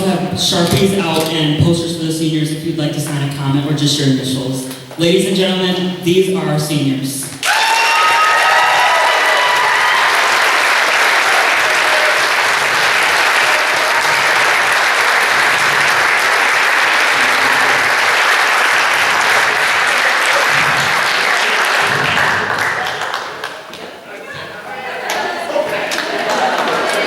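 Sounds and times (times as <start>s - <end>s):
audience applauding: 7.4s - 23.8s, 25.0s - 27.0s.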